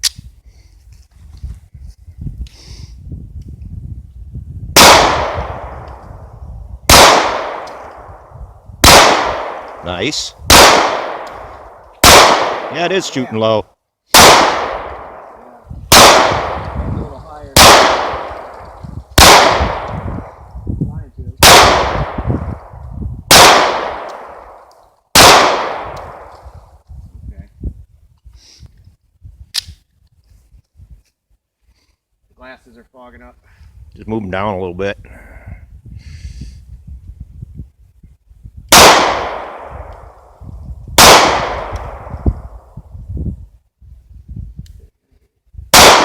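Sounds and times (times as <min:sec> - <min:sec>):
pistol shots: 0:04.8 - 0:06.0, 0:06.9 - 0:08.2, 0:08.8 - 0:09.8, 0:10.5 - 0:13.2, 0:14.1 - 0:16.8, 0:17.5 - 0:20.2, 0:21.4 - 0:22.3, 0:23.3 - 0:26.4, 0:38.7 - 0:40.2, 0:41.0 - 0:42.2, 0:45.8 - 0:46.0.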